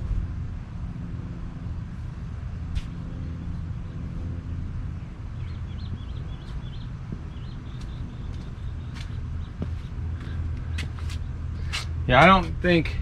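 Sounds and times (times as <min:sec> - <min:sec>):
low mechanical drone: 0:00.0 - 0:13.0
small bird chirping: 0:05.4 - 0:09.9.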